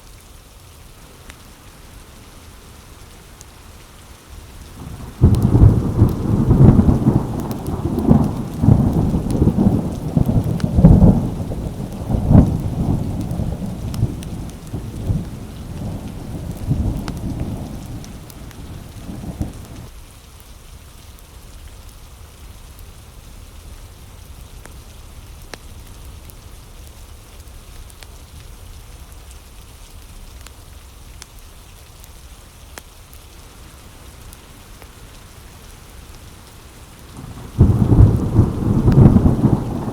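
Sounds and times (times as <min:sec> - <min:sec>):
steady rain: 0:00.0 - 0:39.9
thunder rolling and cracking: 0:04.7 - 0:19.9, 0:33.4 - 0:39.9.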